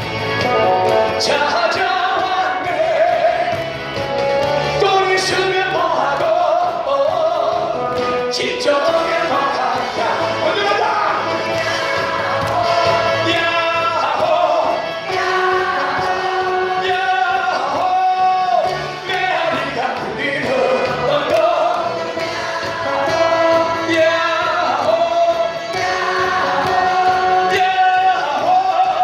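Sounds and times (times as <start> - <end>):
backing music with steady beat: 0.0 - 29.0
group singing in unison: 0.9 - 3.9, 4.9 - 29.0.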